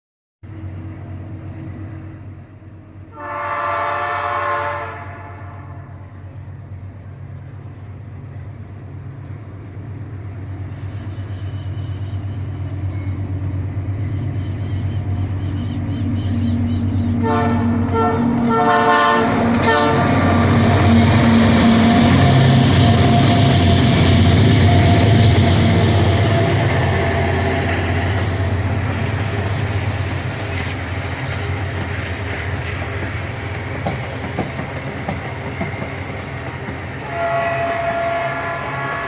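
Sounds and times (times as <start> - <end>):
locomotive engine drone: 0.4 - 39.0
locomotive horn: 3.1 - 6.1, 17.1 - 28.3, 37.0 - 39.0.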